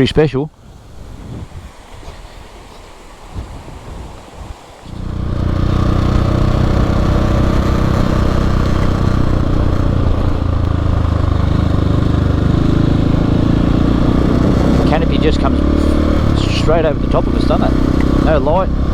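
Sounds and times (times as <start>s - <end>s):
faint water: 0.0s - 5.2s
wind noise: 0.0s - 18.9s
motorcycle engine running: 4.9s - 18.9s.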